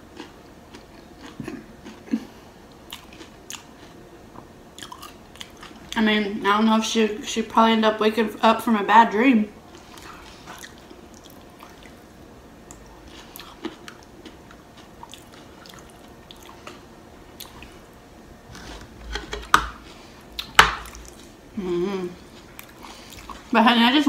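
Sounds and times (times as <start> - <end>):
wet chewing: 9.7 - 12.0, 12.7 - 16.8.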